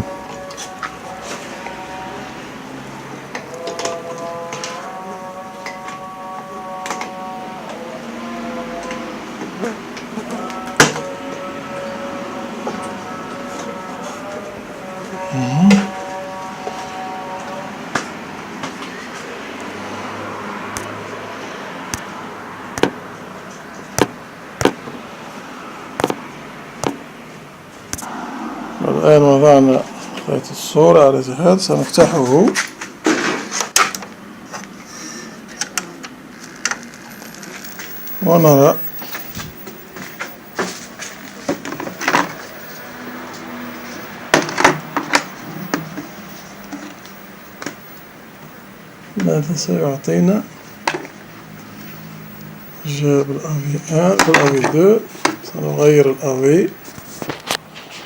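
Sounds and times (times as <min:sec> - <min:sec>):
steady background hiss: 0:36.9 - 0:58.0.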